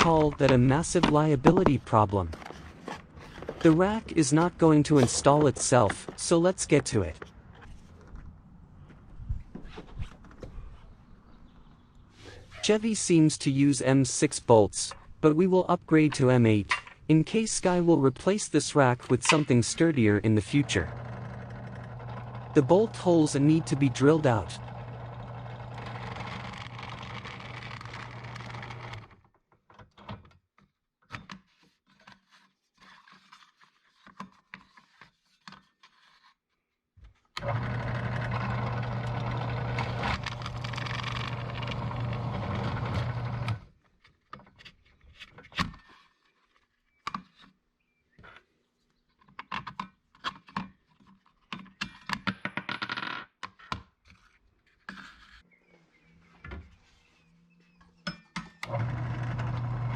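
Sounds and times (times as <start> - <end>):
power drill drilling: 20.6 - 28.2, 37.4 - 43.6, 58.6 - 59.9.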